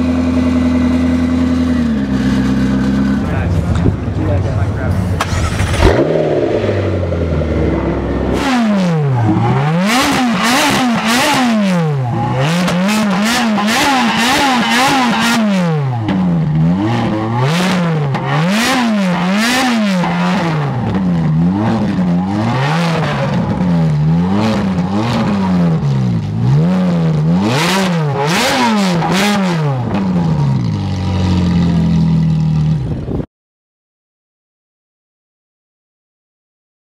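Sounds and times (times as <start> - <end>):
sports car engine revving: 0.0 - 32.9
exhaust crackles: 2.5 - 17.5.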